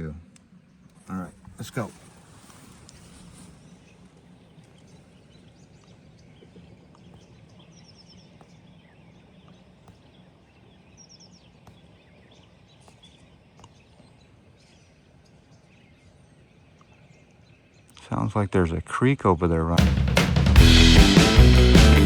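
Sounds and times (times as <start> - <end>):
bird chirps: 3.0 - 18.0
steady low rush: 19.8 - 22.0
high bird notes: 20.5 - 22.0.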